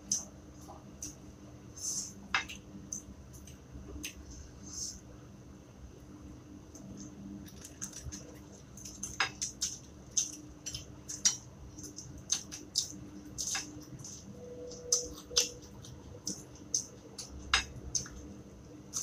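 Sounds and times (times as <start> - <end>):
chewing crunches and mouth smacks: 6.8 - 18.3.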